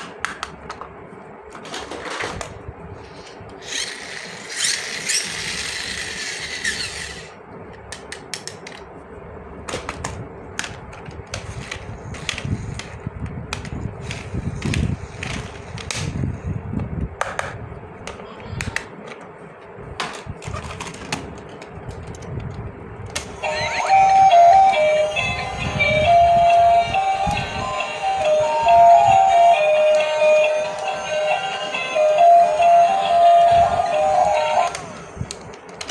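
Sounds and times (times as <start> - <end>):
music with singing: 23.4 - 34.8.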